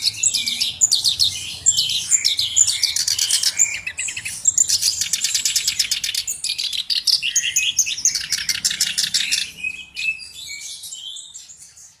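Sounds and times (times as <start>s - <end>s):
warbler singing: 0.0s - 12.0s.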